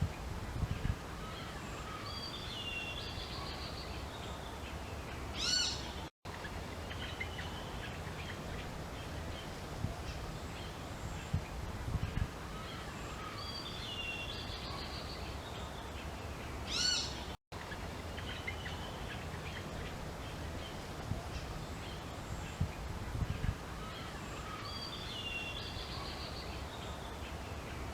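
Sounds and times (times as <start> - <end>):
outdoor background hiss: 0.0 - 27.9
wild birds chirping: 1.2 - 11.4, 12.4 - 27.9.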